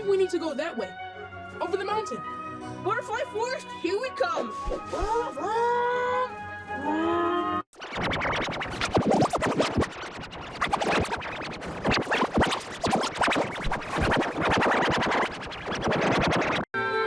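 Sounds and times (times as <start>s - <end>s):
distorted stuttering audio: 7.8s - 16.7s.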